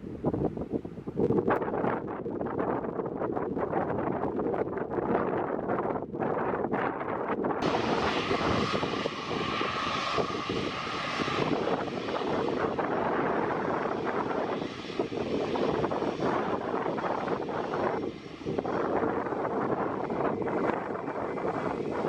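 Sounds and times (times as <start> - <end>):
high engine whine: 7.6 - 22.0
jet engines roaring: 7.6 - 22.0.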